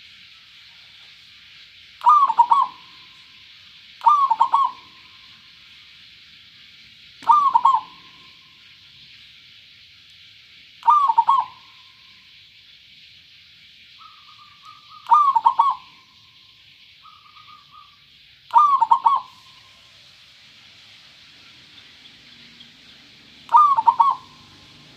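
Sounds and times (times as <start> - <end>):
steady high hiss: 0.0 - 24.9
dove cooing: 2.0 - 3.0, 4.0 - 5.0, 7.2 - 8.2, 10.8 - 11.7, 14.0 - 16.0, 18.5 - 19.5, 23.5 - 24.9.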